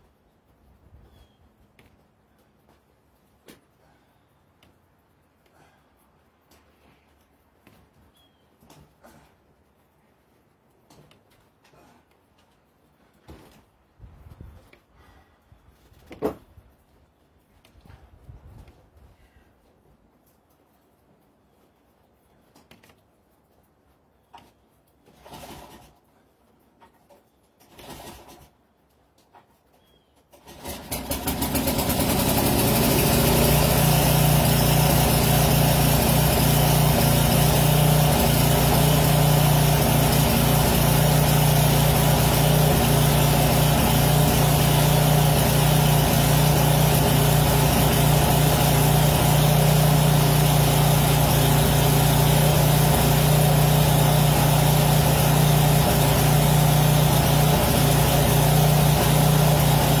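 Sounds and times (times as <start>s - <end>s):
snowblower engine running: 30.4s - 60.0s.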